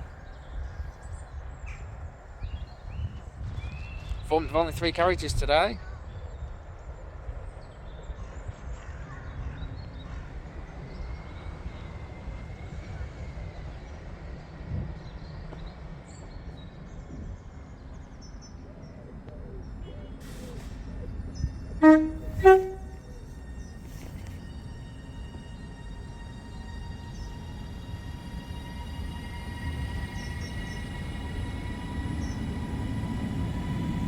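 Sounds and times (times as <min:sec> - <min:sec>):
two-tone train horn blasts: 0:21.8 - 0:23.4.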